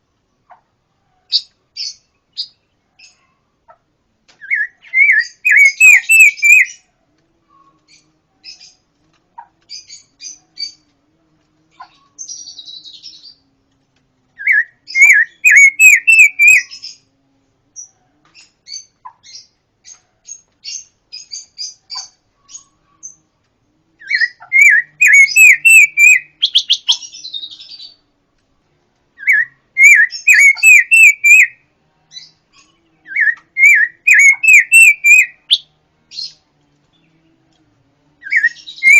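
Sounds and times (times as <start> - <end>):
songbird singing ringing notes: 4.3 - 6.9, 14.3 - 23.3, 24.0 - 28.1, 29.2 - 38.9.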